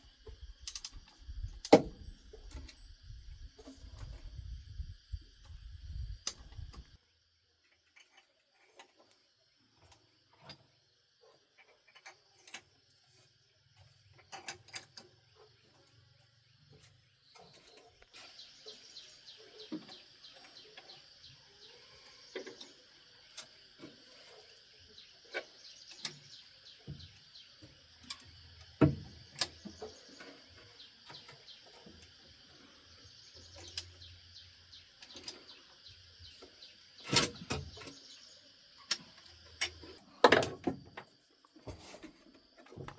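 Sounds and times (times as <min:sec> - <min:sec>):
insect chirring: 0:00.0 - 0:42.9
bird calls: 0:16.7 - 0:28.4.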